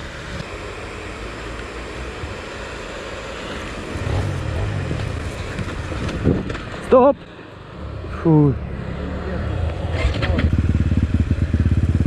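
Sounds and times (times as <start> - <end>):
wind noise: 4.0 - 6.8
motorcycle engine running: 8.1 - 12.0.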